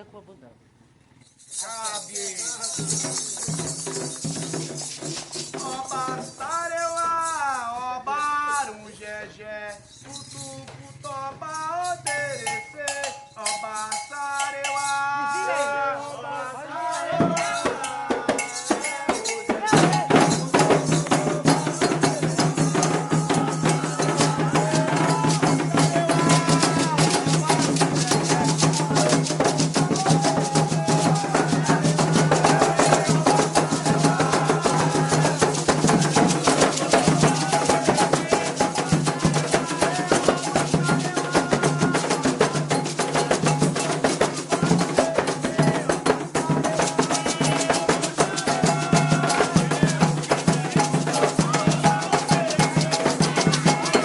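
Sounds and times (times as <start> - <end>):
rattle: 0.8 - 7.7, 9.7 - 15.0
metal bell: 1.2 - 7.6, 11.5 - 15.8, 16.9 - 45.8, 46.4 - 54.0
group singing: 1.5 - 54.0
hand drums beating: 1.7 - 7.2, 16.8 - 54.0.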